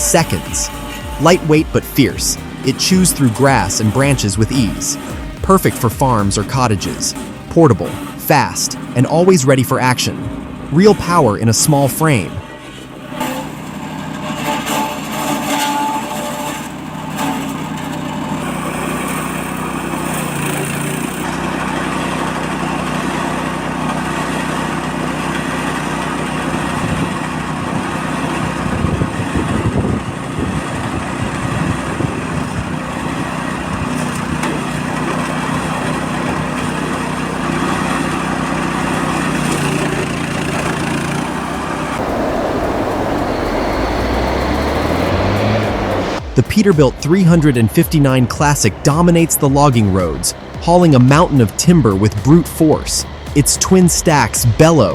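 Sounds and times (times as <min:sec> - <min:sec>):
small petrol engine running: 0:12.7 - 0:46.4.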